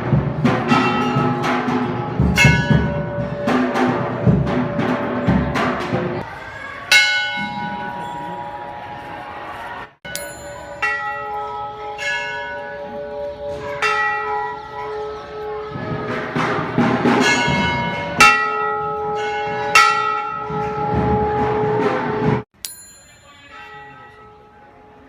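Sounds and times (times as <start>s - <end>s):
metal bells ringing: 0.4s - 6.0s, 6.9s - 8.9s, 10.1s - 21.9s, 22.6s - 25.0s.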